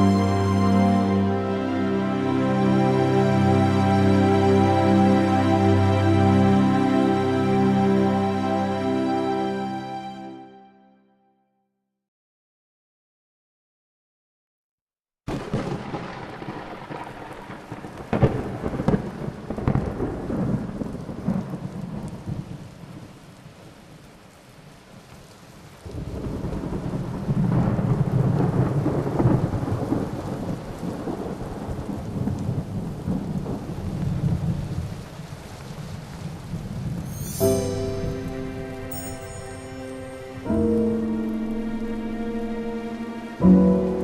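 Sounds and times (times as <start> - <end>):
rain falling: 0.0 - 9.7, 15.3 - 44.0
thunder rumbling: 15.3 - 23.2, 25.8 - 43.0.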